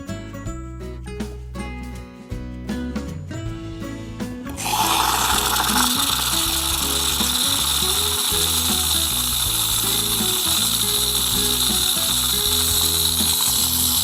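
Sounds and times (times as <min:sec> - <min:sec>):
background music: 0:00.0 - 0:14.0
steam wand hissing: 0:04.6 - 0:14.0.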